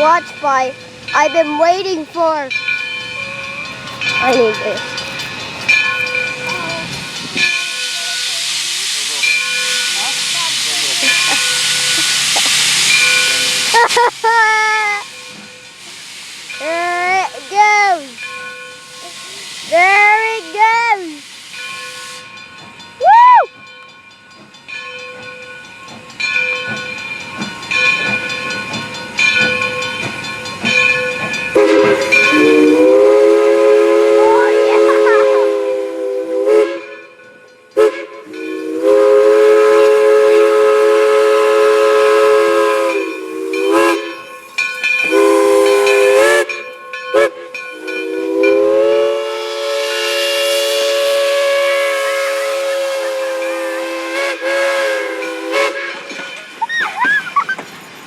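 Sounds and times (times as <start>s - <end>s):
steam hissing: 0.0s - 23.7s, 24.4s - 58.0s
steam locomotive chime whistle: 2.3s - 14.1s, 15.0s - 24.1s, 24.7s - 57.1s
person whooping: 23.0s - 23.5s, 56.6s - 57.4s.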